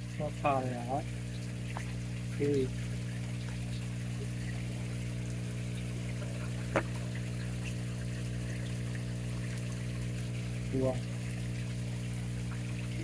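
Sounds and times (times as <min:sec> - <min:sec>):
pond pump humming: 0:00.0 - 0:13.0
water trickling and pouring: 0:00.0 - 0:13.0
water plop: 0:01.4 - 0:02.0, 0:06.1 - 0:10.4.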